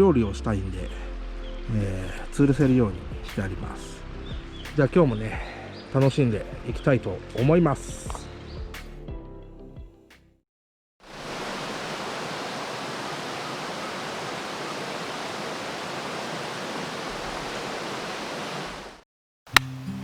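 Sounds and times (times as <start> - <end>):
steady rushing noise: 11.1 - 19.0.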